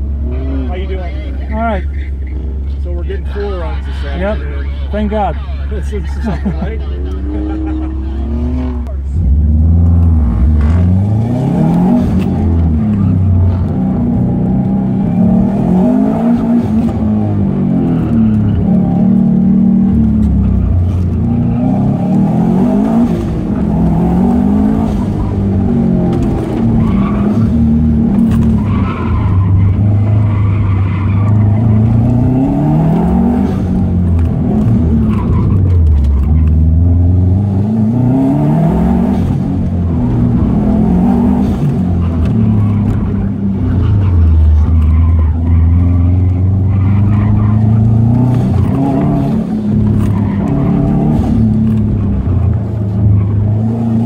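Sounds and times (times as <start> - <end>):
car engine revving: 0.0 - 54.0
tyres squealing: 40.6 - 52.2.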